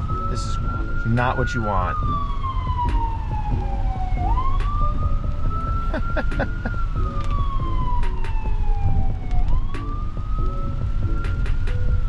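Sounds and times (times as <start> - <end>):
emergency vehicle siren wailing: 0.0 - 12.0
road and rain rumble: 0.0 - 12.0.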